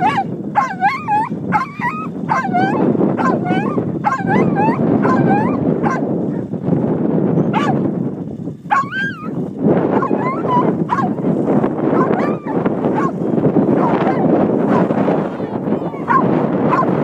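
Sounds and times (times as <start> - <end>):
dog whining and yipping: 0.0 - 6.4, 7.4 - 7.8, 8.7 - 9.4, 10.0 - 11.2, 12.0 - 13.1, 13.8 - 14.2
steady rushing noise: 0.0 - 17.0.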